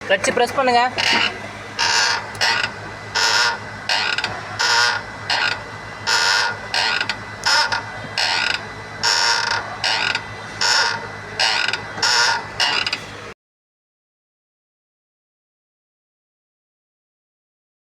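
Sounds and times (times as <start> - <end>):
clutch pedal creaking: 1.0 - 13.1.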